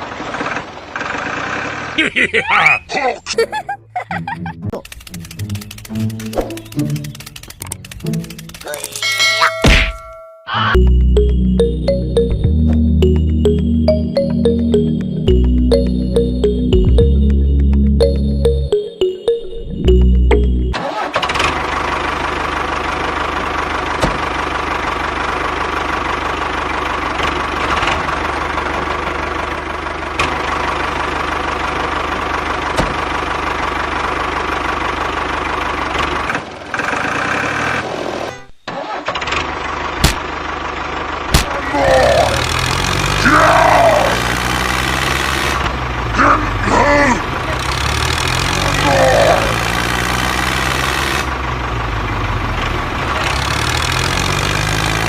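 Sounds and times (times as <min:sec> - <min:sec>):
engine running steadily: 0:02.6 - 0:09.8, 0:19.8 - 0:38.3, 0:39.1 - 0:55.0
deeper engine note rising and falling: 0:10.7 - 0:20.8, 0:41.6 - 0:55.0.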